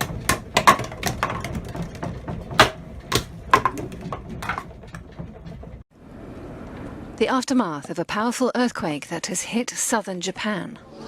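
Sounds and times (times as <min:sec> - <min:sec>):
clattering and knocking: 0:00.0 - 0:05.9.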